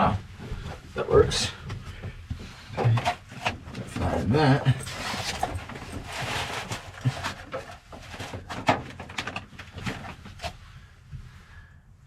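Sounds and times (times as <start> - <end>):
rustling insulation handling: 3.2 - 10.8.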